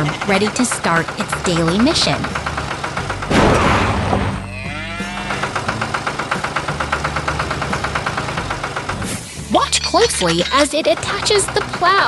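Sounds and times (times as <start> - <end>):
tractor engine chugging: 0.0 - 12.0
cow mooing: 4.4 - 5.6.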